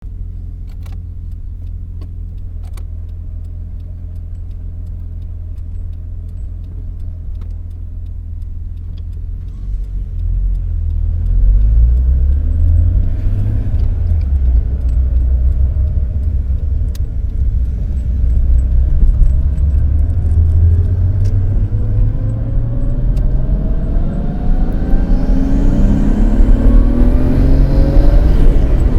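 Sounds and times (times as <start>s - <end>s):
car engine running: 0.0s - 28.9s
faint light ticks: 0.1s - 21.7s.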